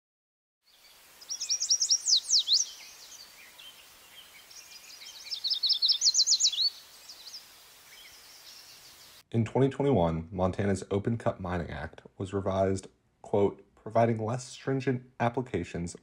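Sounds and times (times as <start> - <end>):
songbird singing: 0.7 - 9.2
faint outdoor hiss: 0.7 - 16.0.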